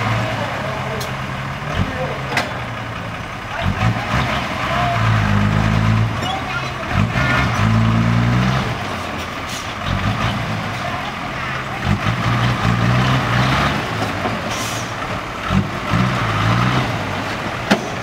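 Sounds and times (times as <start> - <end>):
diesel truck engine revving: 0.0 - 18.0.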